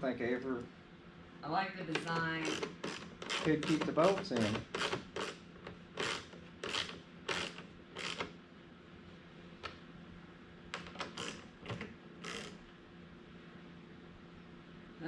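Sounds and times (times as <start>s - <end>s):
tools scraping plastic: 2.0s - 8.3s, 10.8s - 12.6s.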